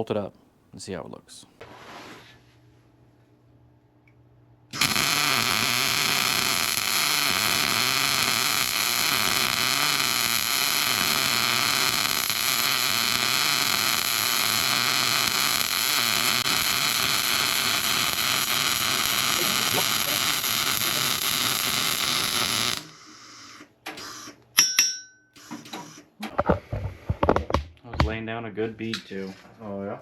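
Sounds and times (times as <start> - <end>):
welder arc hissing and crackling: 4.7 - 24.4, 25.4 - 26.0.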